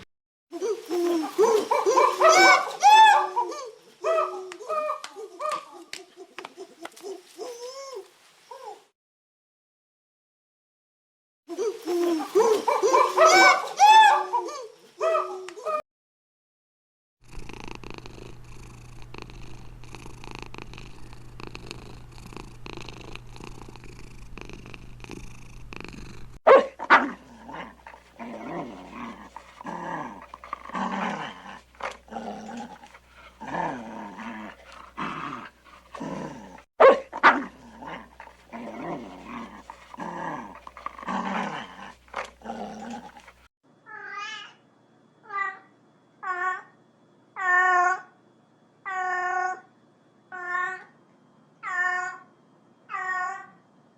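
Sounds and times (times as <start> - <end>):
cat purring rumble: 17.2 - 26.4, 27.2 - 36.7, 37.5 - 43.5.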